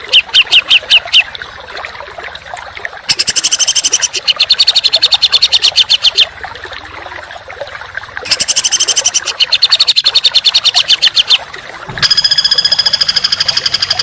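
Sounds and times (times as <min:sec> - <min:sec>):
rapid bird trill: 0:00.0 - 0:01.3, 0:03.1 - 0:06.3, 0:08.3 - 0:11.4, 0:12.0 - 0:14.0.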